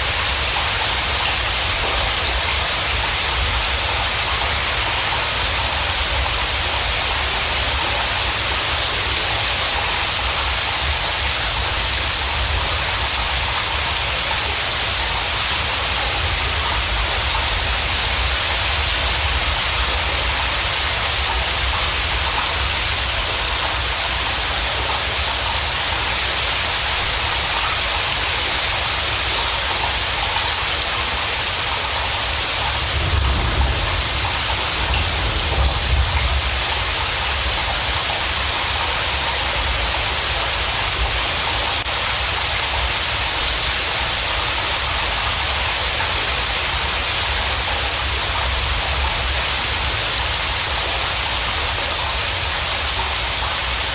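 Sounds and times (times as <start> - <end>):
steady rain falling: 0.0 - 53.9
low rumble: 32.7 - 37.4.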